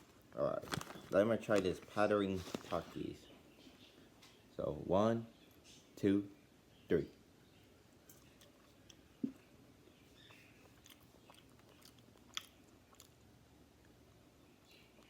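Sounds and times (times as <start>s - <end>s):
chewing fries: 0.1s - 3.0s, 8.0s - 15.0s
soft clicks and crunches: 0.5s - 3.0s.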